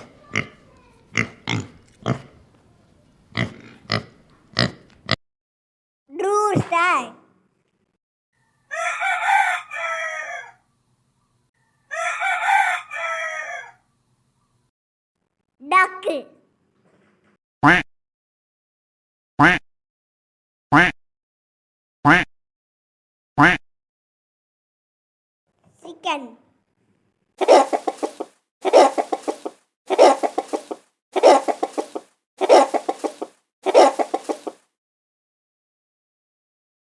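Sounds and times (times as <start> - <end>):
rooster crowing: 8.4 - 10.6, 11.7 - 13.8, 27.4 - 34.6
chicken clucking: 27.4 - 34.6.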